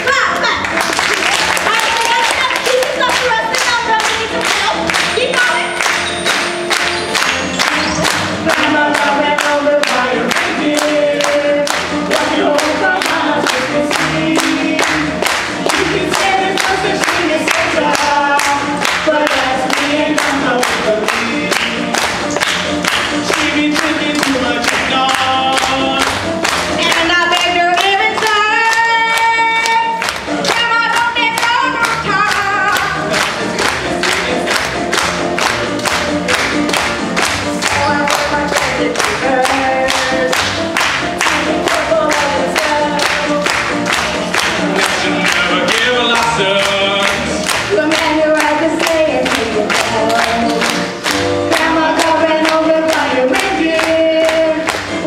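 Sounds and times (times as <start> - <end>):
choir singing with accompaniment: 7.8 - 21.5.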